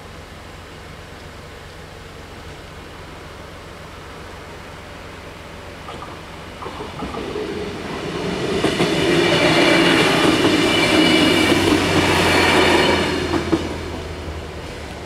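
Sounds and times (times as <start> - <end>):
diesel railcar passing: 0.1 - 15.0
wheels clicking over rails: 5.8 - 15.0.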